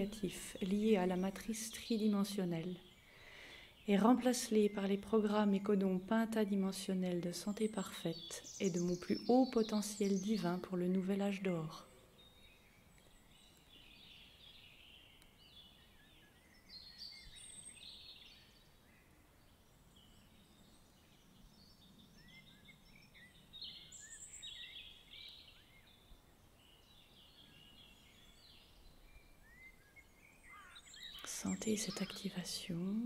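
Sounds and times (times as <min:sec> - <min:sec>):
small birds chirping and trilling: 0:00.0 - 0:33.0.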